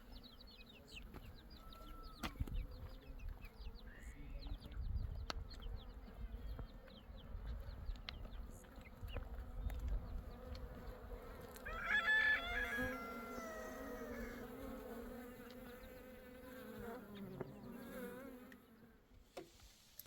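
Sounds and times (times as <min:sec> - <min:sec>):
insect buzzing: 0:09.6 - 0:19.0.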